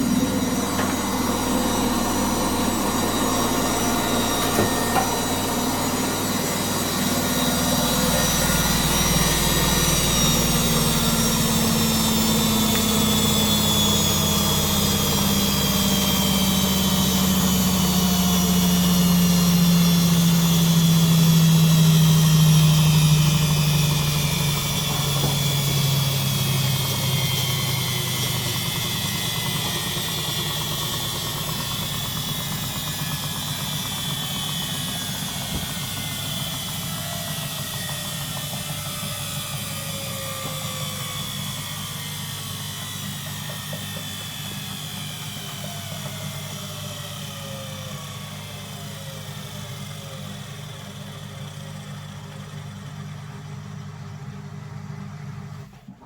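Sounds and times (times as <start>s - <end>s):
washing machine drum spinning down: 0.0s - 56.0s.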